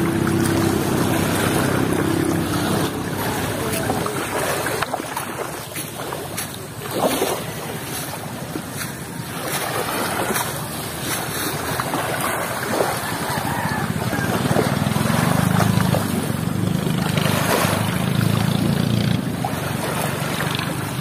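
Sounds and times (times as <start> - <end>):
water lapping against floats: 0.0 - 21.0.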